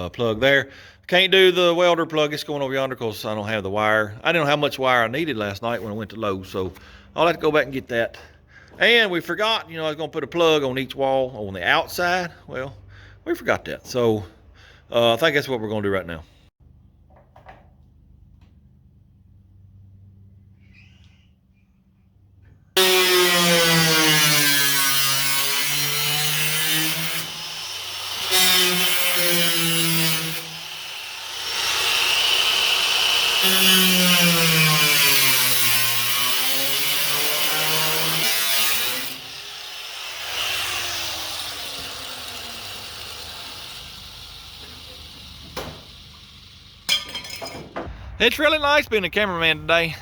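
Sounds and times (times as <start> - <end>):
power saw cutting wall: 22.8 - 46.9.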